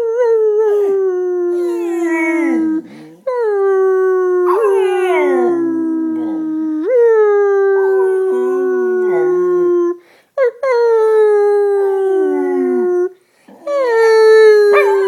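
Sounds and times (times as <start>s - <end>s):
dog howling: 0.6s - 2.9s, 4.3s - 10.0s, 11.8s - 15.0s.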